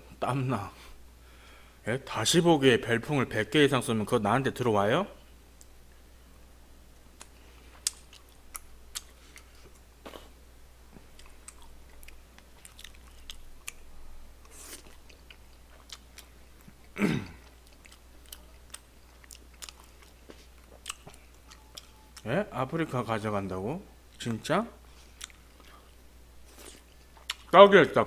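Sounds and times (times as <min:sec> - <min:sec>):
chewing with wet mouth clicks: 0:07.2 - 0:10.3, 0:10.9 - 0:22.3, 0:25.2 - 0:26.0, 0:26.6 - 0:27.5.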